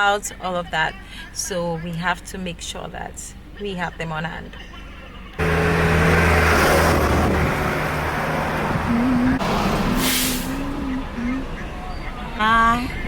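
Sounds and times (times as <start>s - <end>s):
vehicle engines running: 4.6s - 13.0s
brief hiss: 10.0s - 10.6s.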